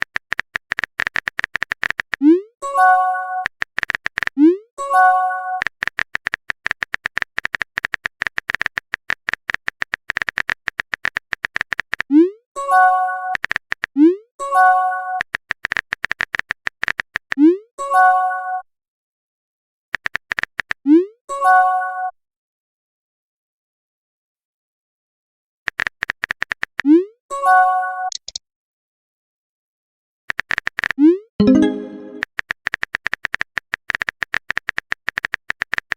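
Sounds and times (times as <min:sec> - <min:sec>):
fast sharp electronic clicks: 0:00.0 - 0:02.2, 0:03.4 - 0:04.4, 0:05.6 - 0:12.1, 0:13.4 - 0:14.0, 0:15.2 - 0:17.4, 0:20.0 - 0:20.8, 0:25.7 - 0:26.8, 0:28.1 - 0:28.4
synthesized clicks: 0:28.1 - 0:28.4, 0:30.3 - 0:35.9
high electronic blips: 0:31.4 - 0:32.2
rising synth pop: 0:31.4 - 0:32.2.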